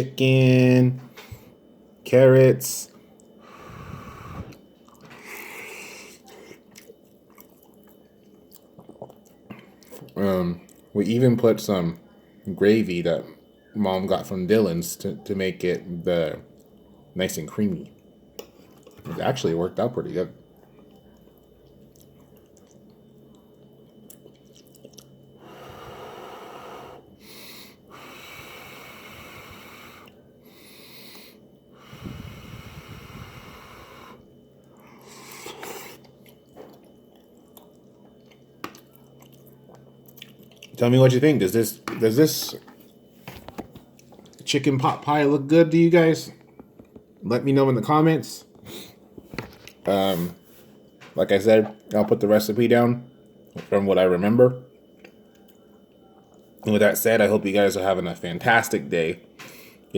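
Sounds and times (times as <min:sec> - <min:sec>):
person breathing heavily: 0:03.4 - 0:04.6, 0:25.4 - 0:34.2
faint chewing: 0:04.5 - 0:10.9, 0:17.8 - 0:19.2, 0:20.5 - 0:25.3, 0:34.6 - 0:40.8, 0:54.8 - 0:56.6.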